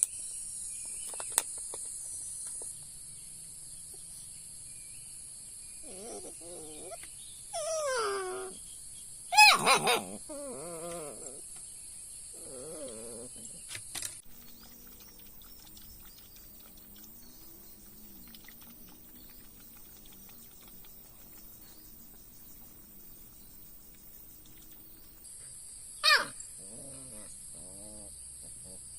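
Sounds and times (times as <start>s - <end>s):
animal whining call: 5.8s - 8.6s, 12.4s - 13.6s.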